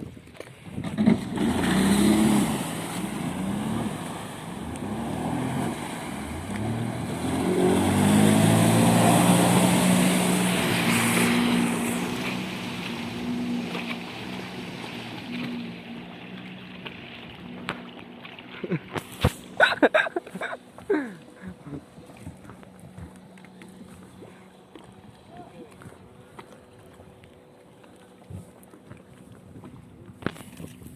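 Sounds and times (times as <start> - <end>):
water noise: 0.0 - 30.9
jet ski engine revving: 0.8 - 24.9.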